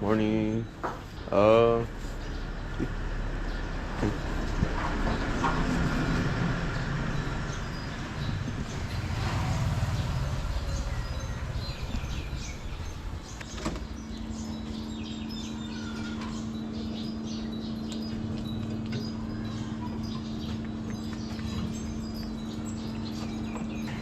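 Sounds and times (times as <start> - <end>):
birds chirping: 0.0 - 24.0
steady low hum: 0.0 - 24.0
low rumble: 1.9 - 15.7.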